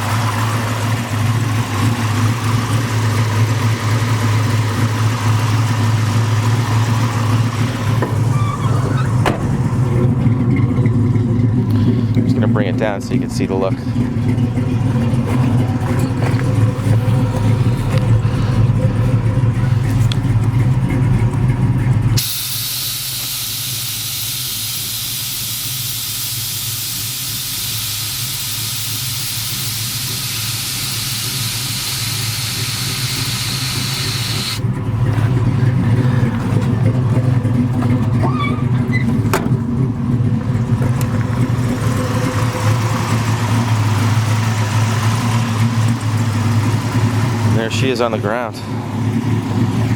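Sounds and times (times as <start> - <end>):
car engine idling: 0.0 - 49.9
air suspension hissing: 6.4 - 10.1, 22.2 - 37.2.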